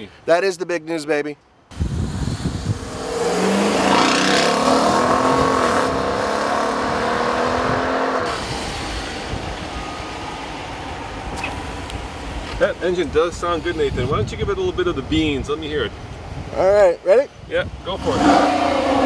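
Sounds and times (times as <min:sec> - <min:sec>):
car accelerating past: 0:02.3 - 0:09.5.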